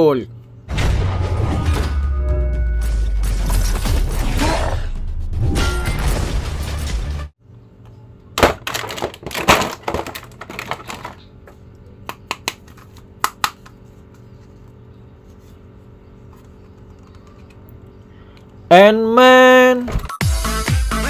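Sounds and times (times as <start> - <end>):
faint steady hum: 7.4 - 19.4
plastic figures clattering: 8.4 - 11.6.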